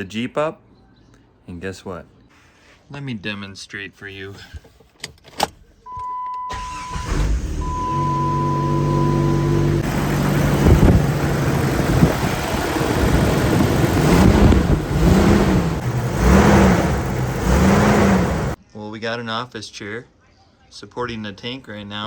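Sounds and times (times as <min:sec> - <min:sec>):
engine starting and revving: 0:06.5 - 0:18.6.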